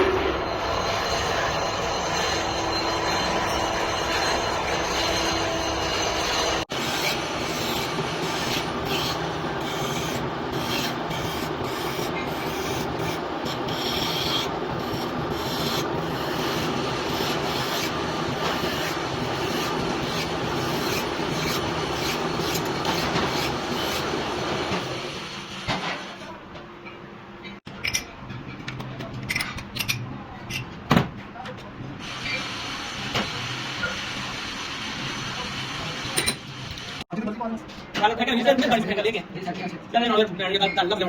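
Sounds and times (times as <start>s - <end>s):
lathe rasping on metal: 0.5s - 24.7s.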